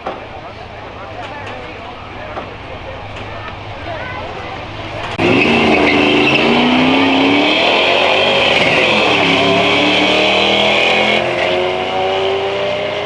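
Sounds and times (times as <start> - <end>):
racing car accelerating: 4.4 - 13.0.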